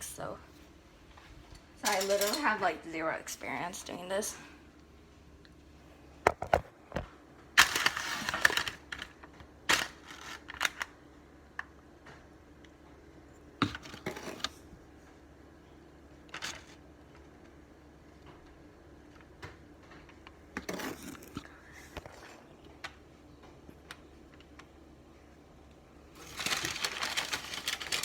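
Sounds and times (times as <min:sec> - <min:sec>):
parchment paper rustling: 0:26.1 - 0:28.0.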